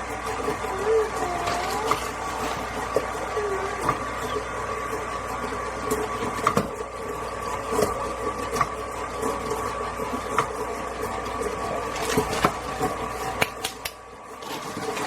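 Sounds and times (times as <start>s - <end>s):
electric kitchen mixer running: 0.0s - 15.0s.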